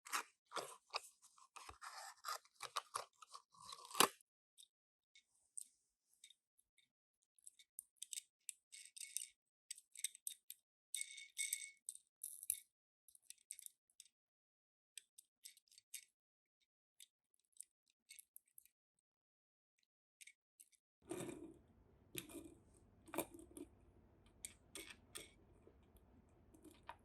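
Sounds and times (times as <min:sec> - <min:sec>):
packaging crinkling and clicking: 0:00.0 - 0:04.1.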